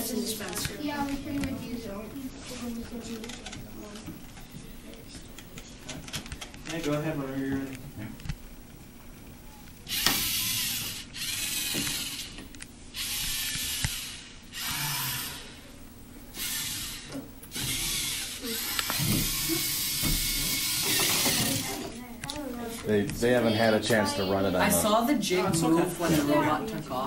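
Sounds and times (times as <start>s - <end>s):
robot motors and gears whirring: 9.9s - 12.4s, 13.0s - 15.5s, 16.4s - 21.8s.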